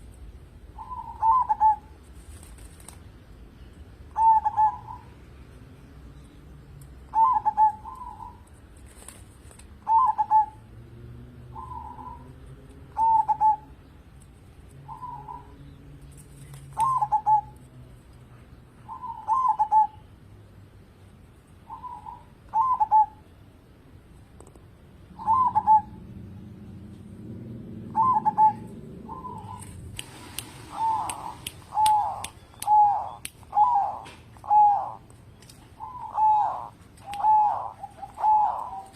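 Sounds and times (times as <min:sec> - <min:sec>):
dove cooing: 0:00.8 - 0:02.0, 0:04.1 - 0:05.1, 0:07.1 - 0:08.4, 0:09.8 - 0:10.7, 0:11.5 - 0:13.8, 0:14.8 - 0:15.6, 0:16.8 - 0:17.6, 0:18.9 - 0:20.0, 0:21.7 - 0:23.2, 0:25.1 - 0:26.4, 0:27.8 - 0:38.9.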